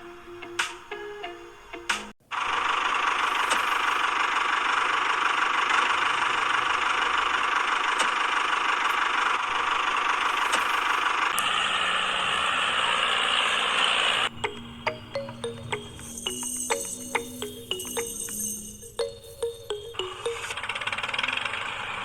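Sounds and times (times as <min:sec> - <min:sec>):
small electric motor running: 0:02.3 - 0:14.3, 0:20.6 - 0:22.0.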